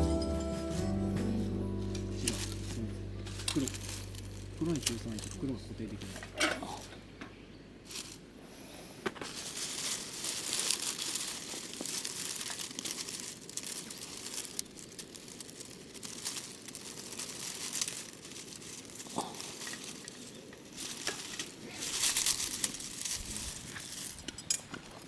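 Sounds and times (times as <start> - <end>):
crinkling and rustling: 0.8 - 8.3, 8.9 - 25.0.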